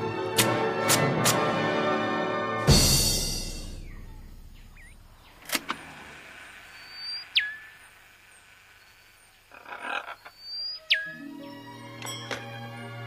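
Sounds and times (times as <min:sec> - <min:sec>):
orchestral hit: 0:02.6 - 0:03.9
rising bird chirp: 0:03.5 - 0:13.0
clicks: 0:05.4 - 0:06.3.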